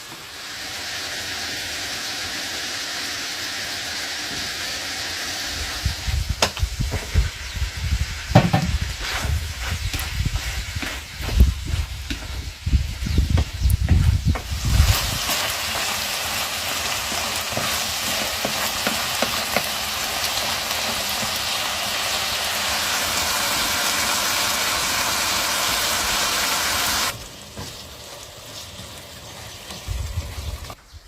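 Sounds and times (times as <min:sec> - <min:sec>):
sizzling hiss with crackles: 0:00.0 - 0:31.0.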